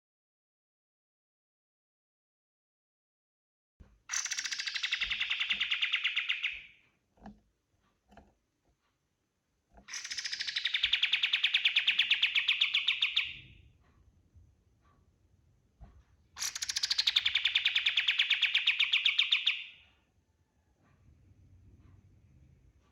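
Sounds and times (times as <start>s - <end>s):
songbird rattling trills: 4.1s - 6.7s, 9.9s - 13.4s.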